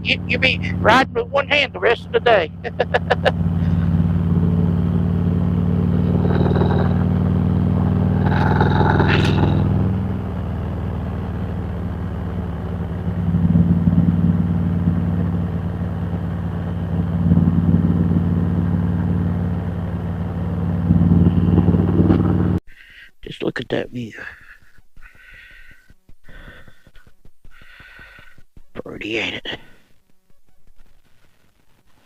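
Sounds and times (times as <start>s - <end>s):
motorcycle engine running: 0.0s - 22.6s.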